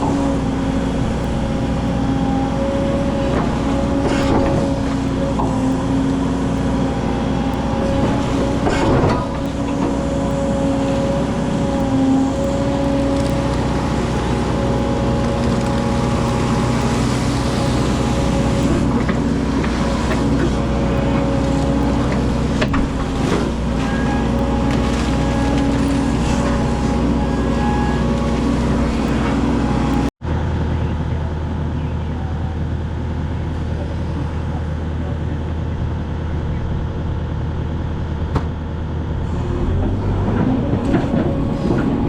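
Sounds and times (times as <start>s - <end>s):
excavator diesel engine running: 0.0s - 42.0s.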